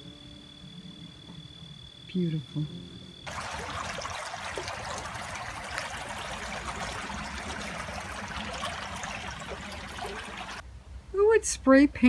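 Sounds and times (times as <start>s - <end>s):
running water rushing: 3.3s - 10.6s.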